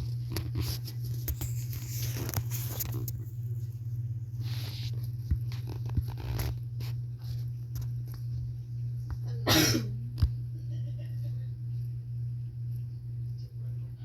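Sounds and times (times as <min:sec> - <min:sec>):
steady low hum: 0:00.0 - 0:14.0
person coughing: 0:09.2 - 0:10.0.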